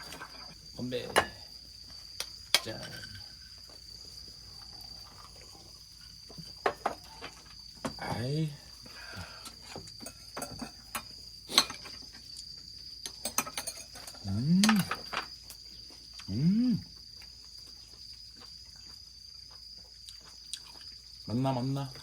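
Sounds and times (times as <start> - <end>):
crickets chirring: 0.0 - 22.0
cutlery and dishes clicking: 13.1 - 15.1
person humming mm: 14.2 - 14.9, 16.2 - 16.9.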